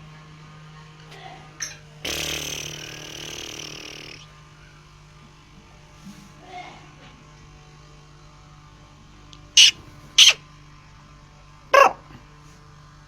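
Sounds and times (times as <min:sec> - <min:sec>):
francolin calling sharp notes: 0:09.6 - 0:10.4.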